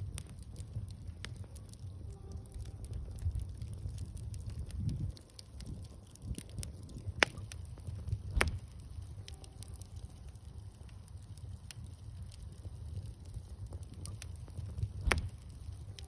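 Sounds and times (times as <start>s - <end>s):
low rumble of fire: 0.0s - 16.0s
sharp pops of burning wood: 0.0s - 16.0s
wood bonfire crackling: 0.0s - 16.0s.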